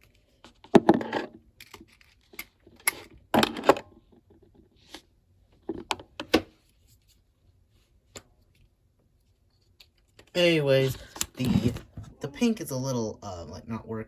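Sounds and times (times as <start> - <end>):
art supplies clicking and scraping: 0.0 - 6.3, 9.4 - 12.2.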